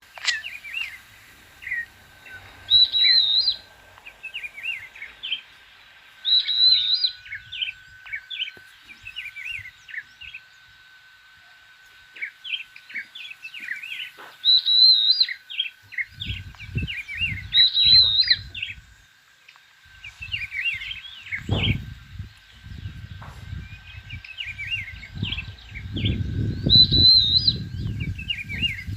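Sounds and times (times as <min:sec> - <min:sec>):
birds chirping: 0:00.0 - 0:28.9
faint steady high tone: 0:00.2 - 0:21.5
low rumbling: 0:00.8 - 0:10.3, 0:19.9 - 0:28.9
bird warbling phrase: 0:16.9 - 0:18.8.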